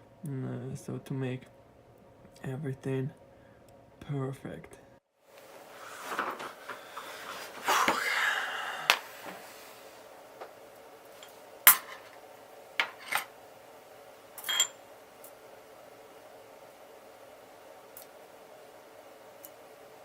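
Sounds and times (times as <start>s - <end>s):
metal tools clinking: 12.8s - 13.3s, 14.4s - 14.8s.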